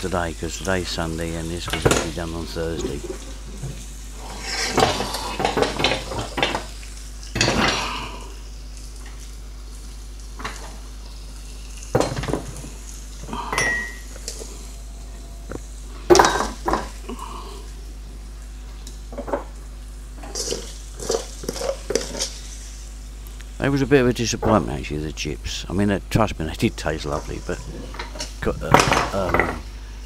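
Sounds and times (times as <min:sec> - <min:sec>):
low sizzle of frying: 0:00.0 - 0:30.0
metal utensils clinking on pans: 0:13.6 - 0:14.1.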